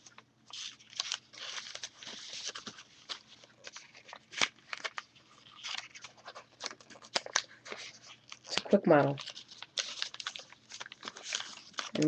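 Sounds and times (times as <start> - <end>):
paper rustling and crinkling: 0.0 - 12.0
paper snapping: 11.1 - 12.0.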